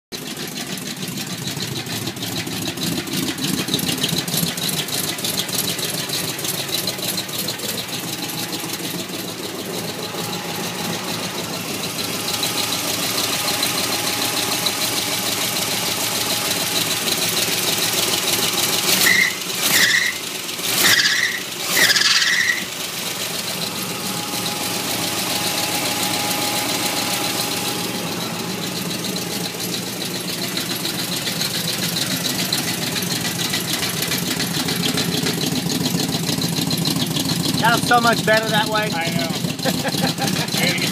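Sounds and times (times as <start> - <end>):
truck engine running: 0.1 - 40.9
short high-pitched squeals: 18.8 - 32.9.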